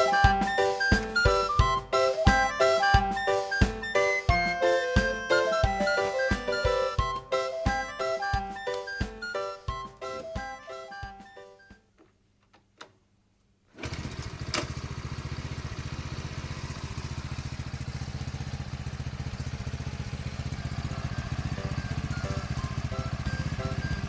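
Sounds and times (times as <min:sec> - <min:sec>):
motorcycle engine idling: 0:13.9 - 0:24.0.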